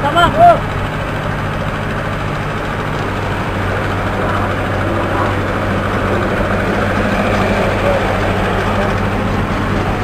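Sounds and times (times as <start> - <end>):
heavy engine humming: 0.0 - 10.0.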